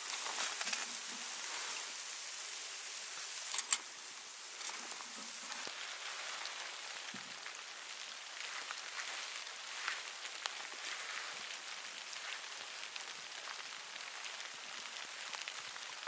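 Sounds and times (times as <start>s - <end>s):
falling snow pattering: 0.0s - 16.0s.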